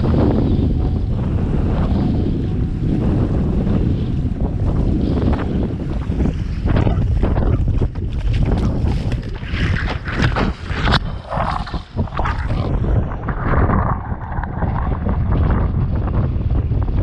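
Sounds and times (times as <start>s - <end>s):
wind buffeting microphone: 0.0s - 17.0s
water rushing and splashing: 4.4s - 15.7s.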